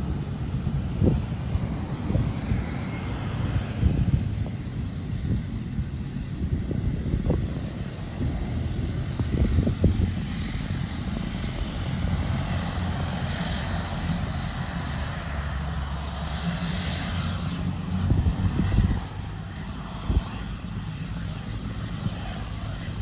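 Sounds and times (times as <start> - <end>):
airliner engine drone: 0.0 - 23.0.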